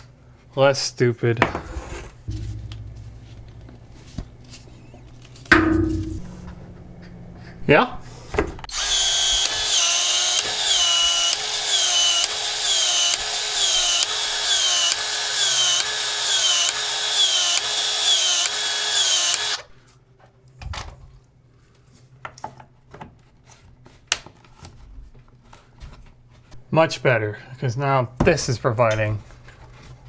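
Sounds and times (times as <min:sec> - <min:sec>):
expansion tool motor whining: 0:08.7 - 0:19.7.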